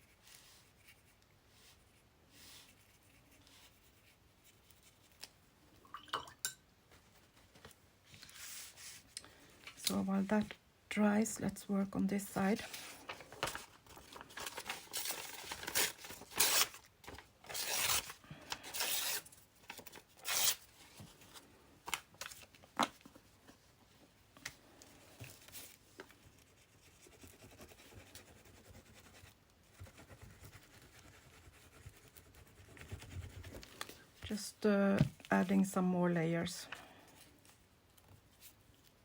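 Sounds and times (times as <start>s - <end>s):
paper tearing: 12.7s - 20.8s.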